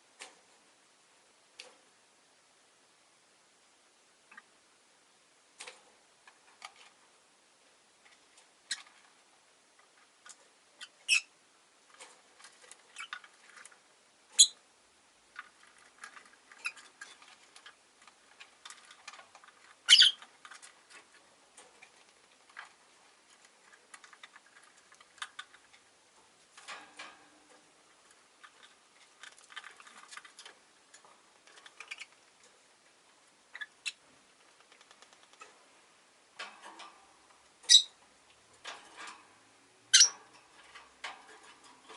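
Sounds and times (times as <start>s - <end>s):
lovebirds chirping: 10.8s - 11.3s, 19.8s - 20.2s, 37.6s - 38.0s, 39.9s - 40.2s
sharp high squeaks: 19.9s - 20.2s, 37.7s - 37.9s, 40.0s - 40.2s.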